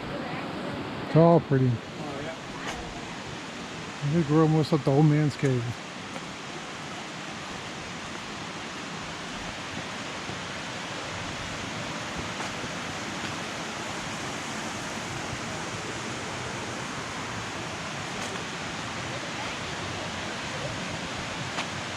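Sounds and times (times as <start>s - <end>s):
creek and waterfall rushing: 0.0s - 21.9s.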